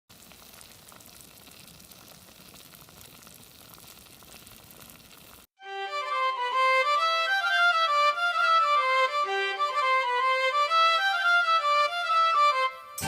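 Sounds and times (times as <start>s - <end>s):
bonfire crackling and popping: 0.1s - 5.5s
violin-led background music: 5.6s - 13.0s.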